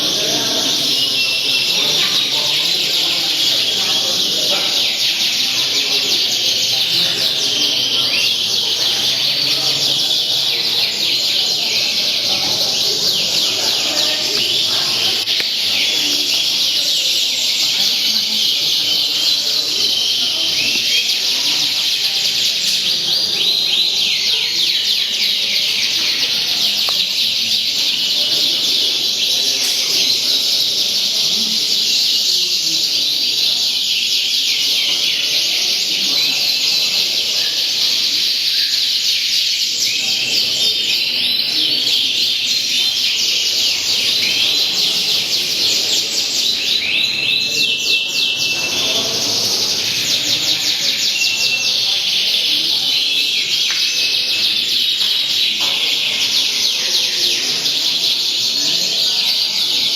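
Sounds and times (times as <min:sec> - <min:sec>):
caged songbirds singing: 0:00.0 - 0:59.9.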